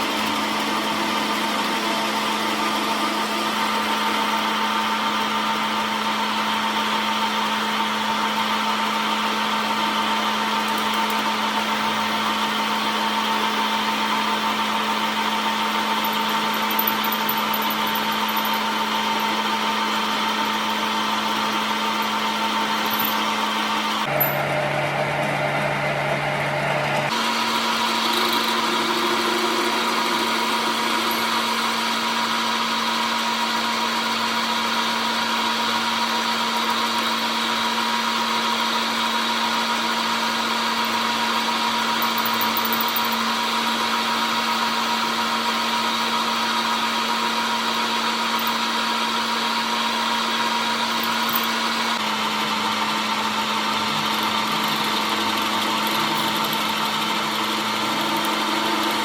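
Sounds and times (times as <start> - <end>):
workshop machine motor humming: 9.5 - 33.4, 48.0 - 59.0.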